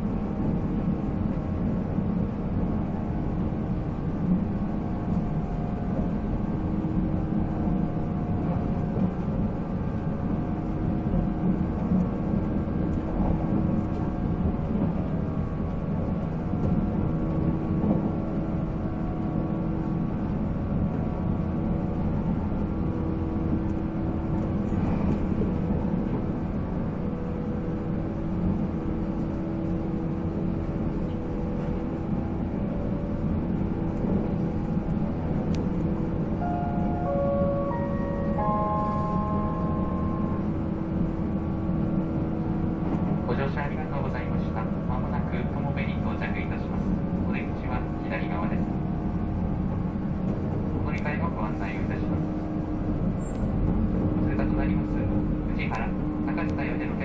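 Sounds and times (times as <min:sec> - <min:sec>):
wheels rumbling on rail: 0:00.0 - 0:57.0
train traction motor whine: 0:21.7 - 0:43.2.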